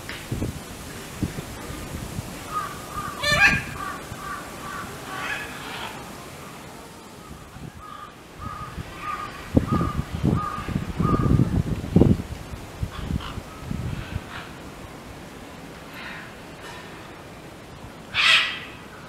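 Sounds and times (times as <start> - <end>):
bird calling: 2.5 - 11.4, 18.1 - 19.0.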